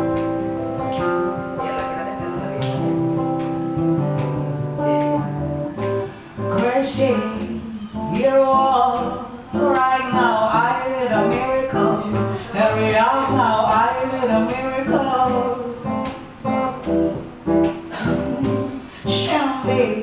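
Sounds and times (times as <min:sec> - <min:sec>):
acoustic guitar chords: 0:00.0 - 0:20.0
person singing with vibrato: 0:06.3 - 0:16.2, 0:17.8 - 0:20.0.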